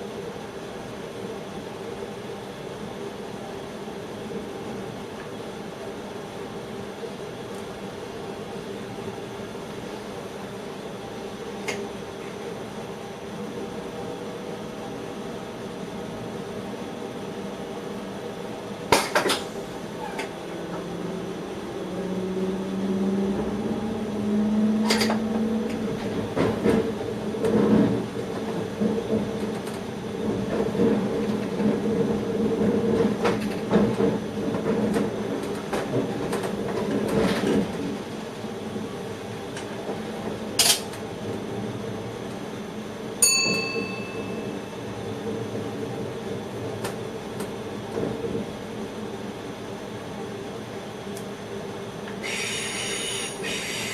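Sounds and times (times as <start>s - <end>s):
train rumbling in cab: 0.0s - 53.9s
bell-like chime: 43.2s - 44.6s.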